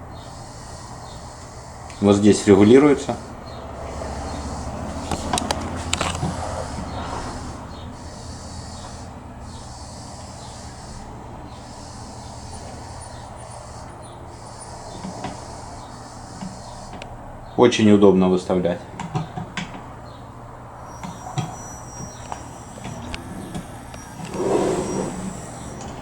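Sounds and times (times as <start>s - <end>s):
key-cutting machine motor hum: 20.7s - 26.0s.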